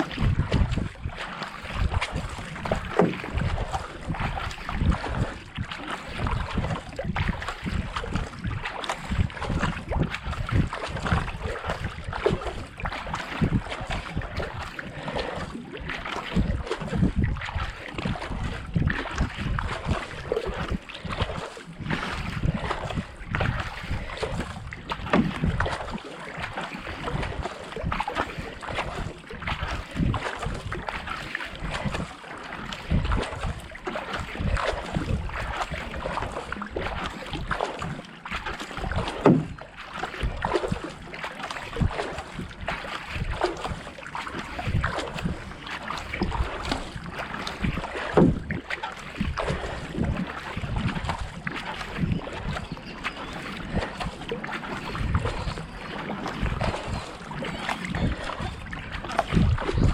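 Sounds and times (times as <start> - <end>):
wind buffeting microphone: 0.0 - 32.1, 32.7 - 41.0, 41.7 - 59.9
paddle blades splashing: 0.0 - 59.9
water rushing past hull: 0.0 - 59.9.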